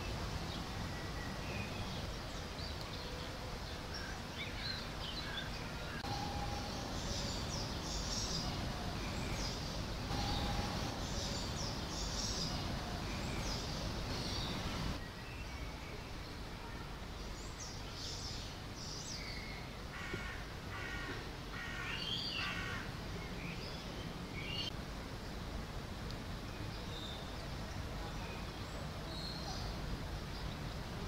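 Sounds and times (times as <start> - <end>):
low outdoor rumble: 0.0 - 15.0
small birds chirping: 0.0 - 16.4.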